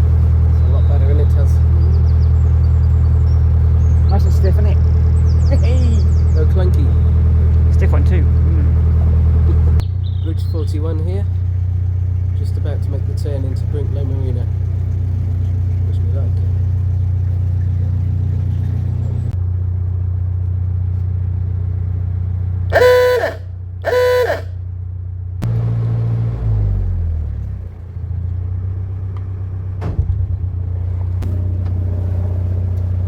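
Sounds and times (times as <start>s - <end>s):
boat diesel engine running: 0.0s - 33.0s
boat horn toots: 22.7s - 24.6s.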